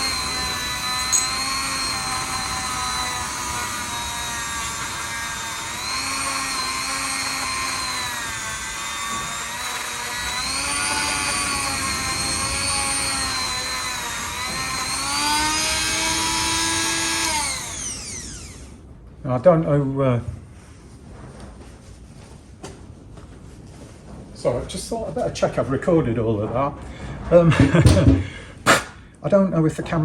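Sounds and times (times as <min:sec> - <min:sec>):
wire brush tool whining: 0:00.0 - 0:18.8.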